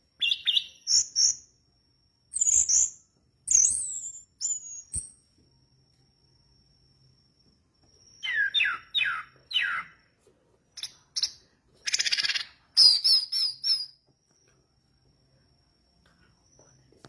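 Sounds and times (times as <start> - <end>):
bird singing: 0.0 - 1.6, 2.3 - 5.2, 7.9 - 10.2, 10.8 - 14.0.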